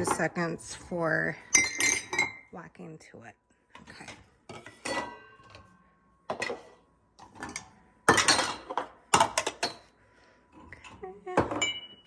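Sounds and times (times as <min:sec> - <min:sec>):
cups and dishes clinking: 0:01.4 - 0:02.5, 0:03.9 - 0:05.7, 0:06.3 - 0:09.9, 0:10.7 - 0:12.0.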